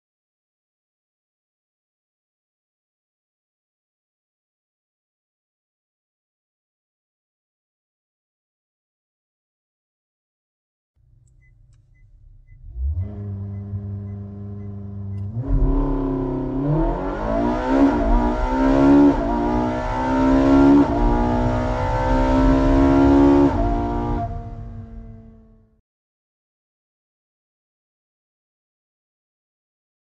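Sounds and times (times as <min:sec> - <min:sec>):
sports car engine revving: 0:11.0 - 0:25.8.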